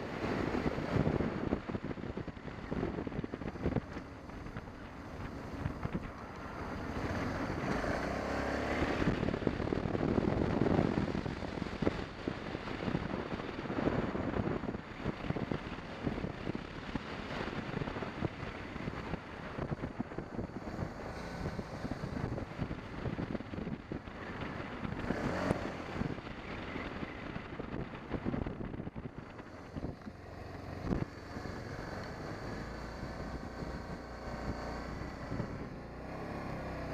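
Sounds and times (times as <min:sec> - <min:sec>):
motorcycle engine at speed: 0:00.0 - 0:36.9
wind buffeting on microphone: 0:00.0 - 0:36.9.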